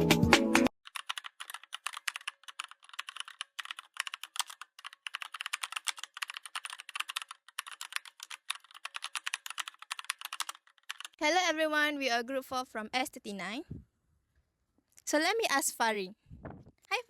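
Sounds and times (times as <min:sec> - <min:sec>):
rapid keyboard typing: 0:00.8 - 0:11.2.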